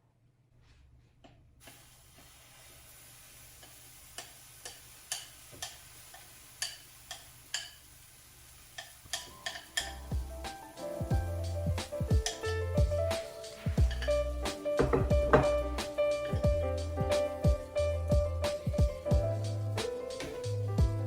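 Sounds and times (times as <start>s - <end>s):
pancake sizzling: 1.6s - 20.6s
sharp utensil clicks: 4.2s - 7.8s, 8.8s - 10.1s.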